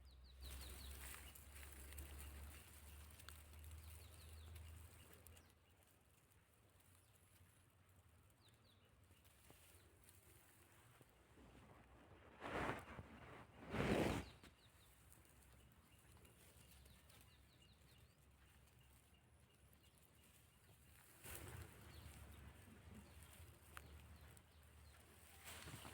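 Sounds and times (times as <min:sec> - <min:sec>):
rustling noise: 0:09.3 - 0:15.4, 0:21.0 - 0:25.9.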